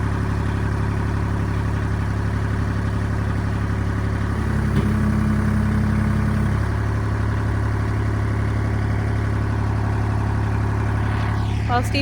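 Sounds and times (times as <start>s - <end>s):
tractor engine idling: 0.0s - 12.0s
high-pitched hum: 4.4s - 6.8s, 7.4s - 12.0s.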